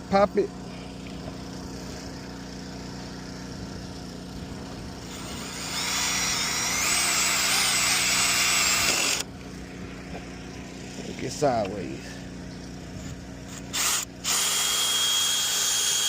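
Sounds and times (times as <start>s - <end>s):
steady low hum: 0.0s - 16.0s
cordless drill whining: 5.0s - 9.3s, 13.5s - 16.0s.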